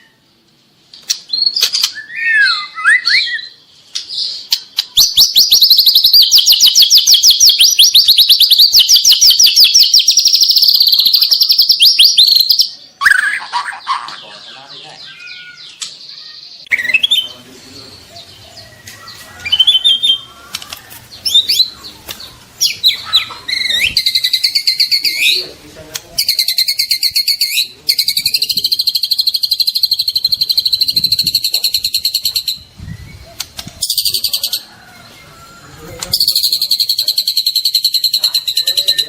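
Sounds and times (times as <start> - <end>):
bird singing whistles and trills: 1.3 - 3.6, 4.9 - 13.4, 16.7 - 17.4, 18.1 - 20.3, 22.6 - 25.4, 26.2 - 34.5, 36.2 - 39.0.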